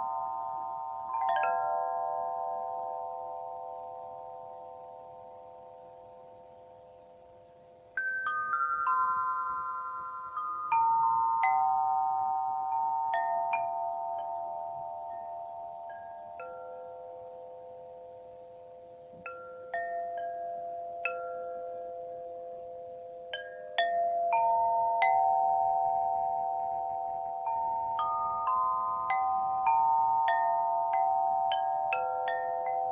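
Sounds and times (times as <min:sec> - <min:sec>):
metallophone notes ringing: 0:00.0 - 0:32.9.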